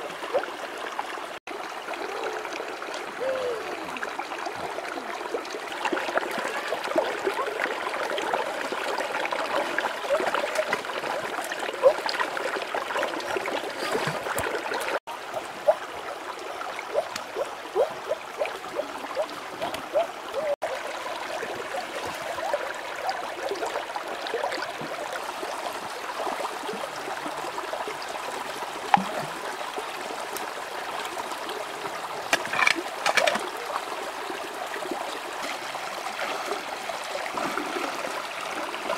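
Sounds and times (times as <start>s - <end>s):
shallow river water trickling: 0.0s - 38.9s.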